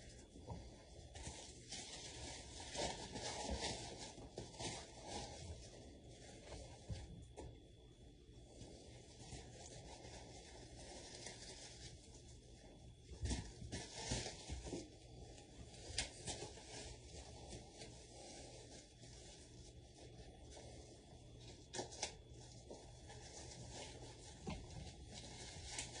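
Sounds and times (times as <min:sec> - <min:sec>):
faint rustling and rubbing: 0:00.0 - 0:26.0.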